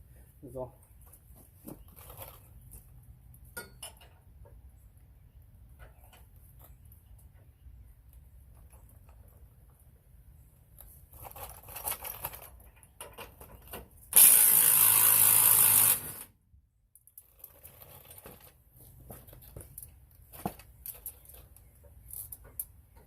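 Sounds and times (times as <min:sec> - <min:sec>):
impact wrench running: 0:14.2 - 0:16.3.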